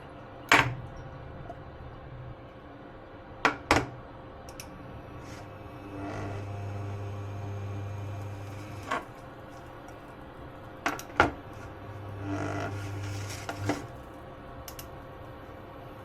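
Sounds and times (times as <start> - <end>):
small electric motor humming: 5.1 - 9.2, 11.6 - 14.0.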